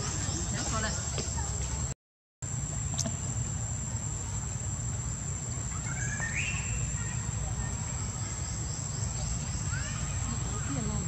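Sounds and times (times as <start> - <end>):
bird call rising in pitch: 5.8 - 7.2.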